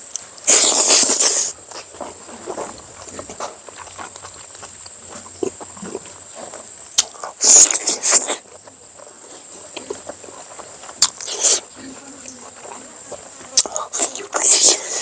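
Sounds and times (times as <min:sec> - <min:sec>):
chewing and mouth smacks: 0:00.0 - 0:15.0
hissy slurp: 0:00.4 - 0:03.4, 0:07.0 - 0:11.8, 0:12.7 - 0:15.0.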